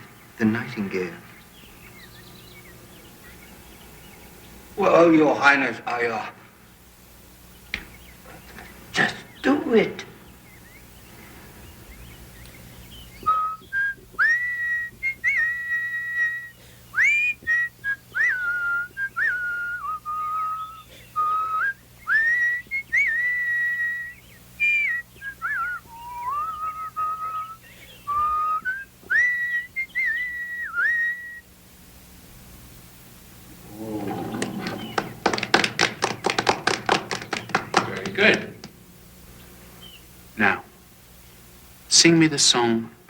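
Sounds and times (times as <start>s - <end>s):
person whistling bird-like song: 13.0s - 31.5s.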